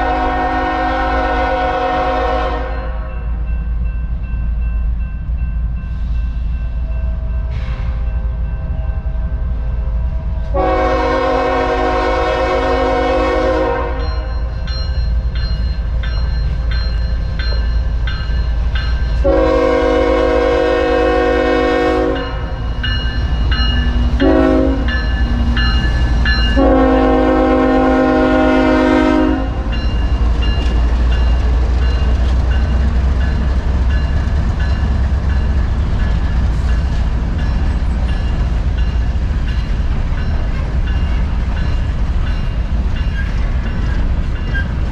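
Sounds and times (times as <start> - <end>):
locomotive air horn blasts: 0.0 - 3.2, 10.5 - 14.3, 19.2 - 22.6, 24.2 - 25.1, 26.6 - 29.7
passing train rumble: 0.0 - 44.9.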